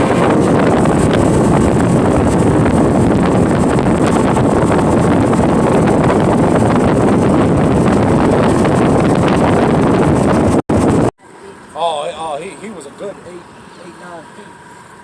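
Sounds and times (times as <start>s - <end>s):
wind buffeting microphone: 0.0s - 11.1s
boat motor running: 0.0s - 15.0s.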